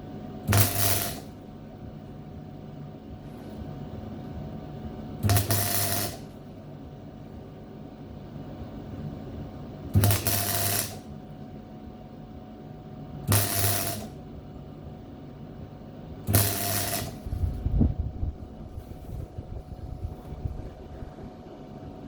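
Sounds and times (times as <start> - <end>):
low electrical hum: 0.0 - 22.0
welder arc crackling: 0.5 - 1.4, 5.2 - 6.4, 9.8 - 11.3, 13.2 - 14.2, 16.2 - 17.7.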